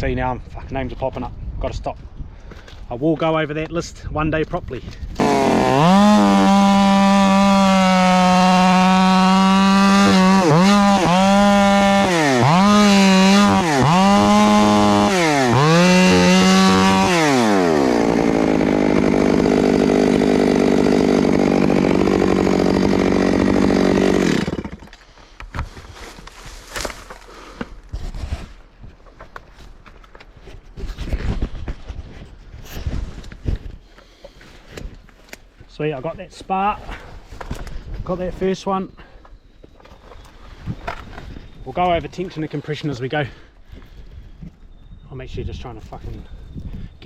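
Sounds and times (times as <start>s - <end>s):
chainsaw revving and cutting: 5.2s - 24.9s.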